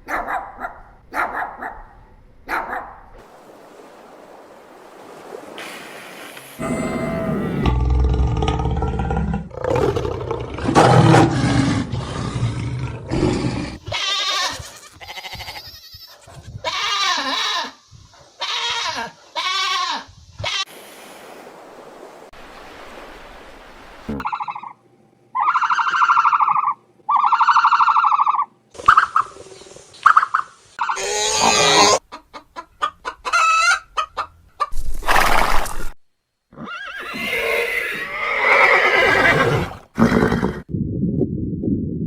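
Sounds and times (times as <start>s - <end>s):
animal calls bending in pitch: 6.6s - 7.7s
high loud animal calls: 6.6s - 12.3s, 25.4s - 29.4s, 30.1s - 32.0s, 36.6s - 40.7s
low rough animal roar: 6.6s - 13.8s.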